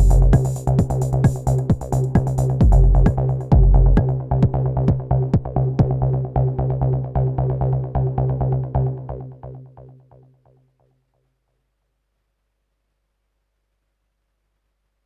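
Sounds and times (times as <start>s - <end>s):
drum machine percussive hits: 0.0s - 5.9s
heavy low thump: 0.0s - 6.0s
low bass tone: 0.0s - 10.2s.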